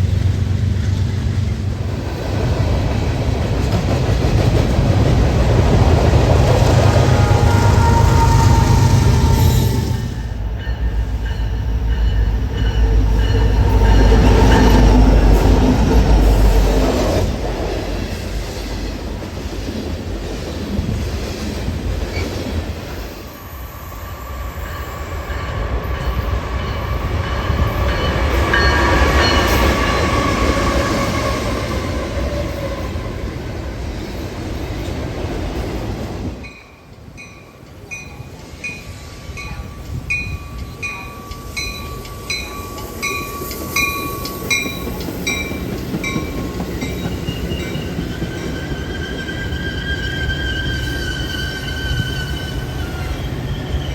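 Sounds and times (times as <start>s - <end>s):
train rumbling past: 0.0s - 53.9s
faint wheel squeal: 47.2s - 53.9s.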